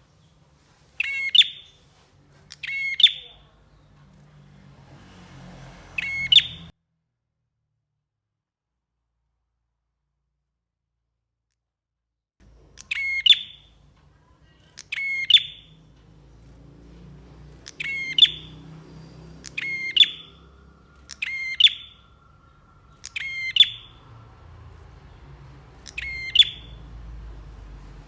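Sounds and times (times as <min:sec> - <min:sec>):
bird rattling trill: 0:01.0 - 0:01.8, 0:05.9 - 0:06.7, 0:14.7 - 0:28.0.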